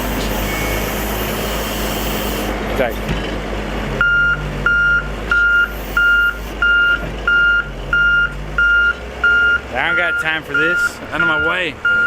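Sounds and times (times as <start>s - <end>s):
diesel engine rumble: 0.0s - 12.0s
backup alarm beeping: 4.0s - 12.0s.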